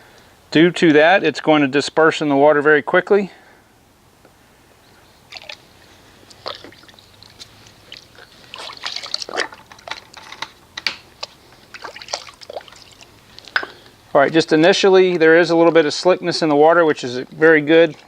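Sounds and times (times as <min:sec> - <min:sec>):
small water splashes and drips: 0:05.3 - 0:10.2, 0:11.0 - 0:13.6, 0:17.3 - 0:18.0.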